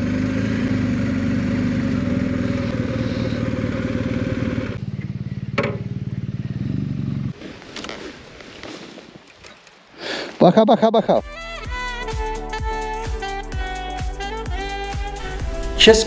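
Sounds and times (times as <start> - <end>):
motorcycle engine running: 0.0 - 8.0, 11.6 - 16.0
sharp clunk: 5.6 - 5.9.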